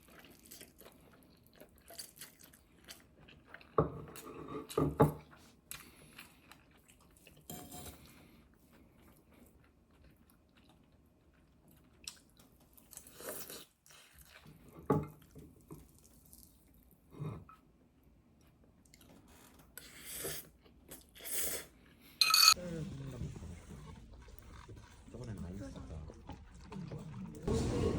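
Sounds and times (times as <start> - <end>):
person chewing: 0.0 - 4.8, 5.6 - 14.8, 23.6 - 27.5.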